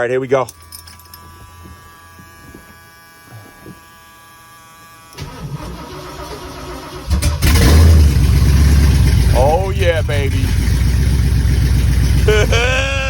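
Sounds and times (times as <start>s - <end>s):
loud engine running: 5.2s - 13.0s.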